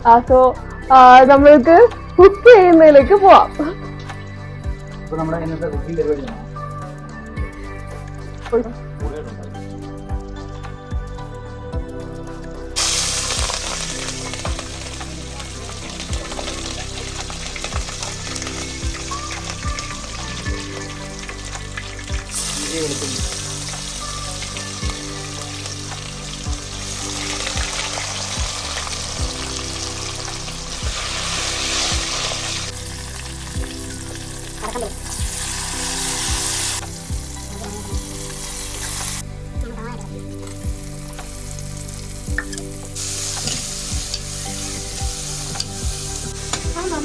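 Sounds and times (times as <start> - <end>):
food sizzling in hot oil: 12.8 - 47.0.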